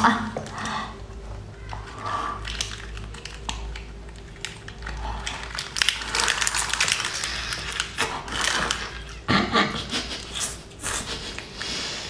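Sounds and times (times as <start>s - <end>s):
wet chewing and slurping: 1.7s - 9.3s.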